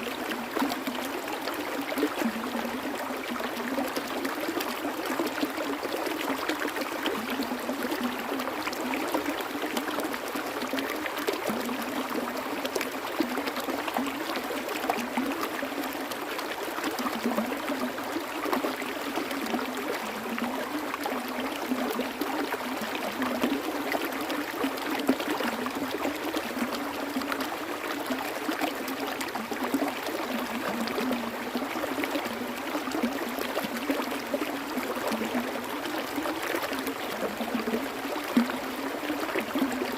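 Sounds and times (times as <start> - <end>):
water flowing and trickling: 0.0 - 39.9.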